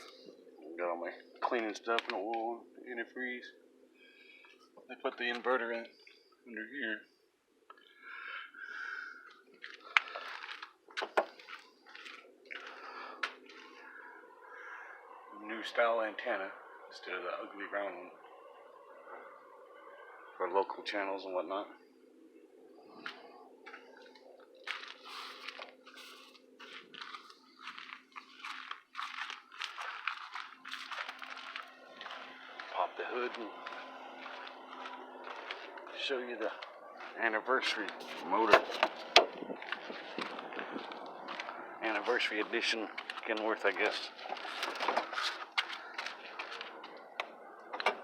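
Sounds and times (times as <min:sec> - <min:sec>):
faint low hum: 0:00.0 - 0:48.0
footsteps crunching on loose ground: 0:09.6 - 0:14.0, 0:22.8 - 0:48.0.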